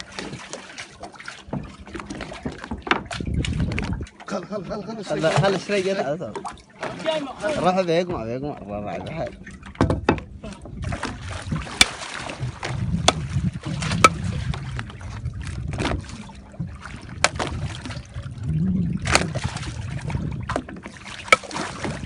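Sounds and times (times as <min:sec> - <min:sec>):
water lapping against boat hull: 0:00.0 - 0:22.0
low hum: 0:08.3 - 0:22.0
sharp knocks: 0:09.8 - 0:10.3.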